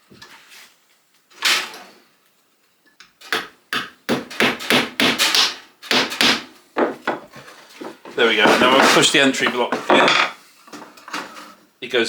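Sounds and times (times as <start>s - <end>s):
hammer tapping pin into wood: 5.9s - 10.3s.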